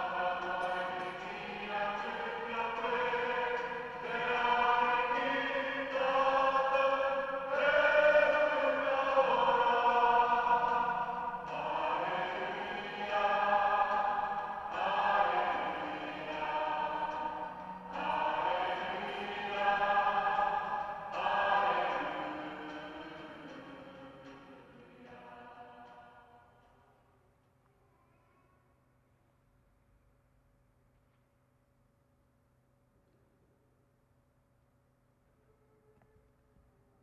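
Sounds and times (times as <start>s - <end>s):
choir singing: 0.0s - 26.5s.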